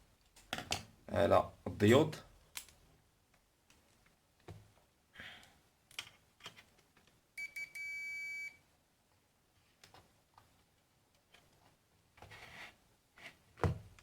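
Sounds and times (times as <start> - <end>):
multimeter beeping: 7.4 - 8.6.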